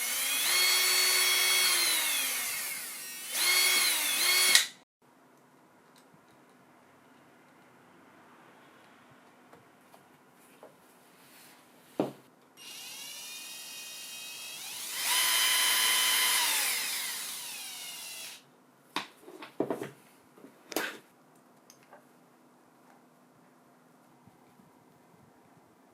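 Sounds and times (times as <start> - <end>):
cordless drill motor whining: 0.0 - 4.8, 12.6 - 18.4.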